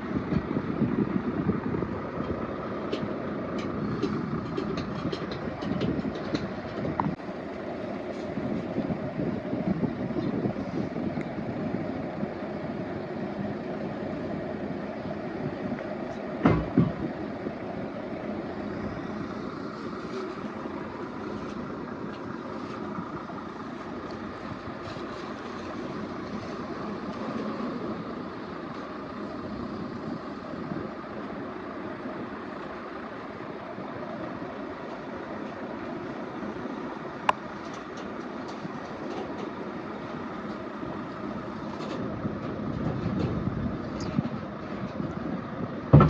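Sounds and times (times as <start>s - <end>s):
vehicle rumbling: 0.0s - 46.0s.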